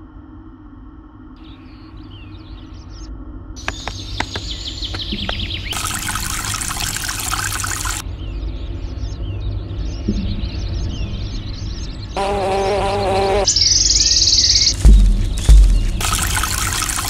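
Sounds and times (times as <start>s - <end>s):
bird-like chirps: 1.4s - 17.0s
low bass: 14.6s - 16.4s.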